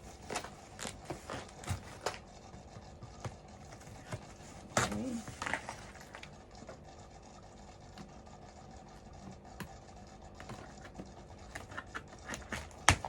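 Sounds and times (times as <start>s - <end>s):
low steady hum: 0.0s - 13.0s
faint clicks and taps: 0.2s - 6.8s, 9.2s - 9.8s.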